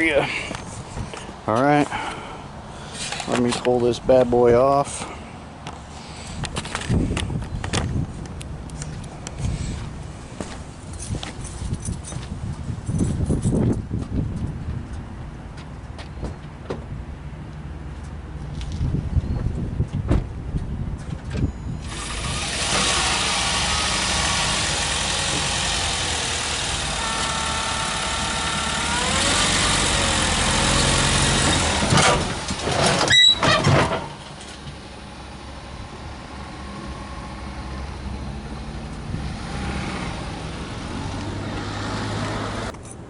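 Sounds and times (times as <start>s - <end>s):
pickup engine running under load: 21.6s - 42.8s
engine idling: 21.9s - 31.2s.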